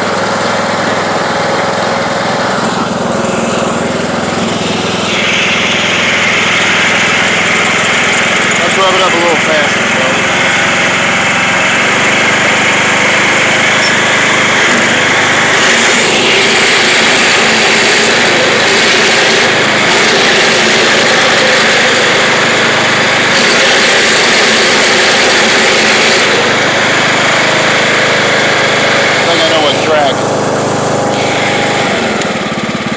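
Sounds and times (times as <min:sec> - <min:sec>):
lawn tractor engine running: 0:00.0 - 0:32.9.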